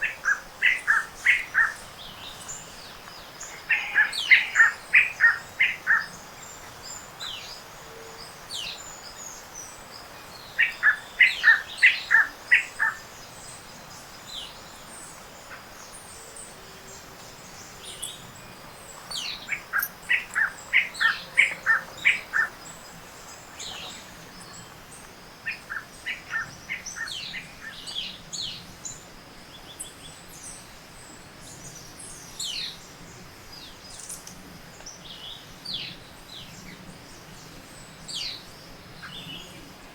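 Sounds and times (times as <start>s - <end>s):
bird chorus: 0.0s - 39.9s
thin high bird calls and chips: 19.1s - 21.1s.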